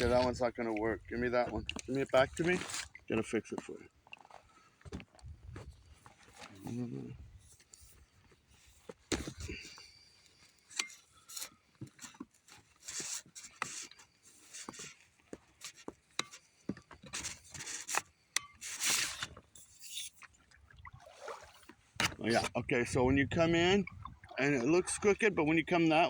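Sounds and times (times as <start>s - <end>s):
oar scraping: 0.0s - 23.2s, 23.9s - 26.0s.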